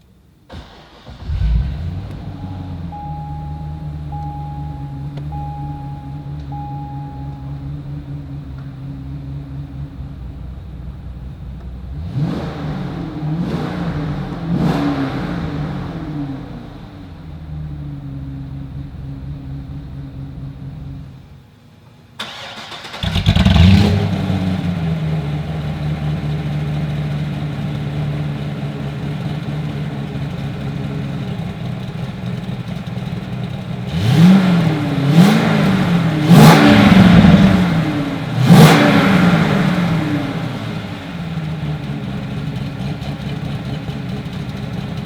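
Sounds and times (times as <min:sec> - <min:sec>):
car engine idling: 0:00.0 - 0:45.0
car engine starting: 0:00.0 - 0:45.0
engine revving: 0:00.5 - 0:10.0, 0:11.8 - 0:17.8, 0:22.2 - 0:27.1, 0:33.8 - 0:42.2.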